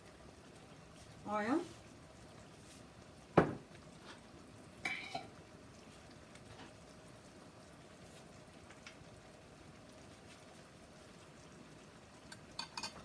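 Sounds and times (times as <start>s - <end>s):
sharp knock of cookware: 3.4s - 3.6s.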